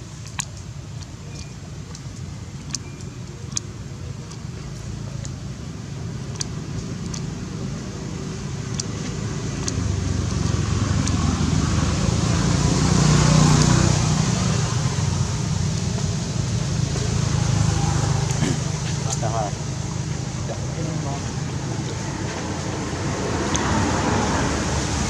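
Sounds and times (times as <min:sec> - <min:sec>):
vehicle passing by: 0:05.5 - 0:25.0
sharp clicks: 0:08.7 - 0:11.3.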